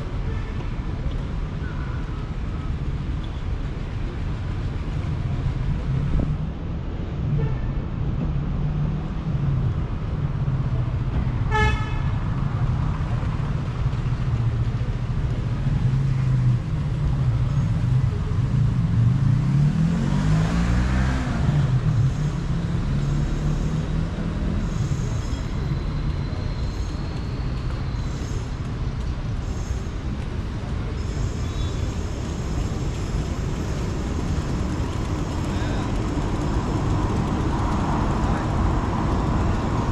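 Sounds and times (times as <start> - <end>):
traffic engines running: 0.0 - 39.9
car horn toot: 11.5 - 12.1.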